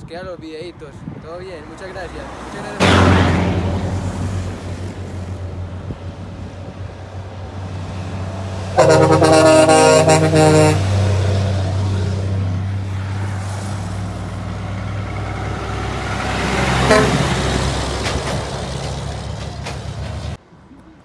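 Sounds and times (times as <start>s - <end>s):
diesel truck engine running: 1.5s - 20.4s
truck horn blowing a chord: 8.7s - 12.1s, 16.5s - 17.9s.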